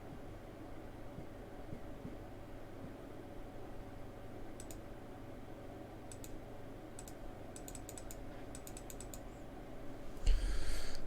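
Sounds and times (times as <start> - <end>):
faint steady hum: 0.0 - 11.0
keyboard and mouse clicks: 4.6 - 4.8, 6.1 - 6.4, 7.0 - 9.3.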